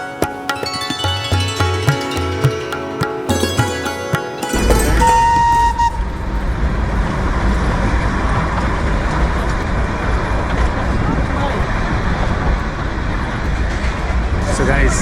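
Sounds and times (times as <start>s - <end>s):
traffic rumble: 4.5s - 15.0s.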